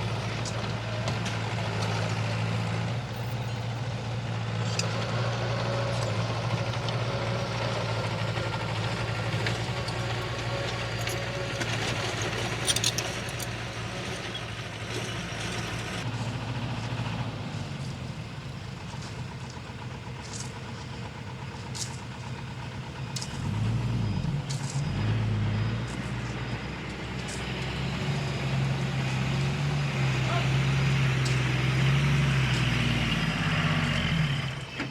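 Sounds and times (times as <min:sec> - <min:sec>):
heavy diesel engine revving: 0:00.0 - 0:34.9.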